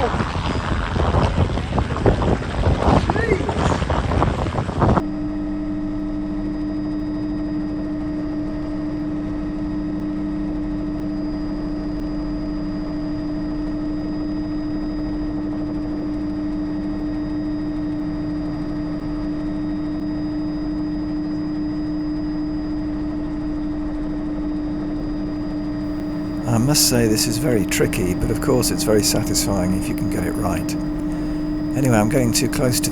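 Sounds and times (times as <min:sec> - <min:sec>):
helicopter cabin drone: 0:25.9 - 0:32.9.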